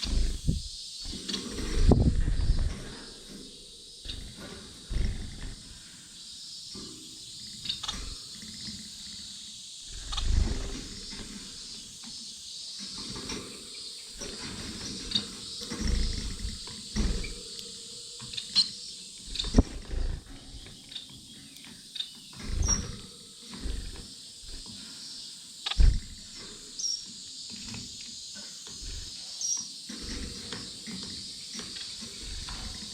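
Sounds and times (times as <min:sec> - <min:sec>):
low thumps: 0:00.0 - 0:00.8, 0:25.8 - 0:26.2
finches chirping and twittering: 0:00.0 - 0:32.9.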